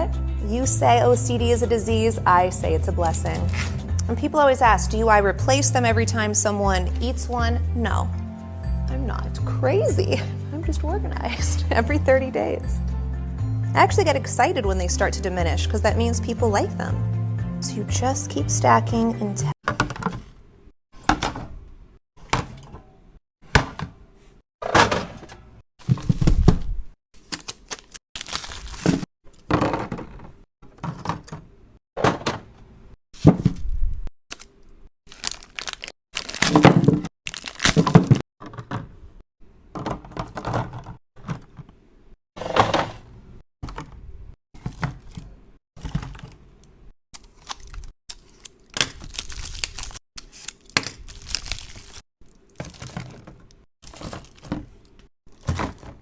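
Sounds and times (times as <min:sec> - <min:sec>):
items being stacked thunking: 0:19.6 - 0:20.4, 0:21.0 - 0:21.6, 0:22.2 - 0:26.8, 0:29.4 - 0:33.7, 0:36.5 - 0:37.1, 0:37.8 - 0:39.1, 0:39.7 - 0:41.8, 0:42.4 - 0:44.0, 0:44.6 - 0:46.4, 0:52.6 - 0:56.0.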